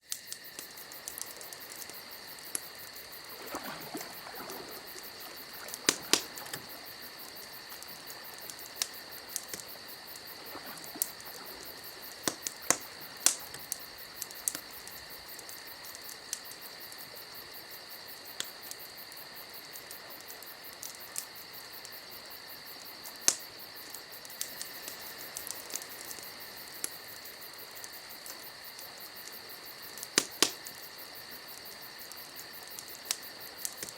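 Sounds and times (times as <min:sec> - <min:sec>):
wood fire crackling: 0:00.0 - 0:33.9
sharp pops: 0:05.6 - 0:06.8.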